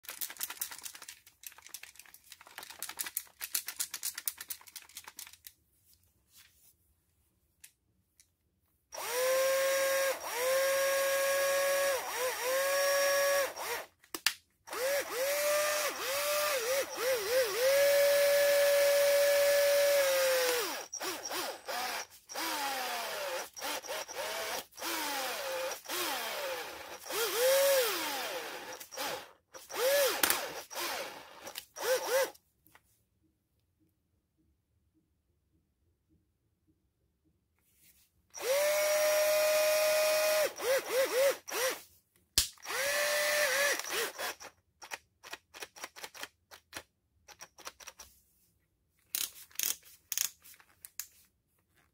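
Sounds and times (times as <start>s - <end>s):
cordless drill motor whine: 9.0s - 13.9s, 14.7s - 32.3s, 38.4s - 41.8s, 42.6s - 44.5s.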